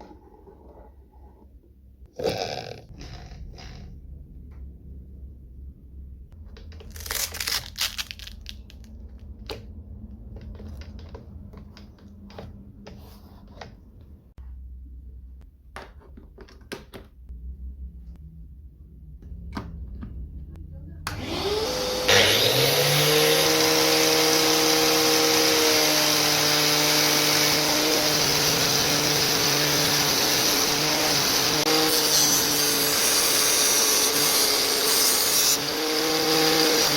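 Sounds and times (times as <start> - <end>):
low hum: 2.9 - 7.2, 17.3 - 21.2
angle grinder motor whine: 21.1 - 36.9.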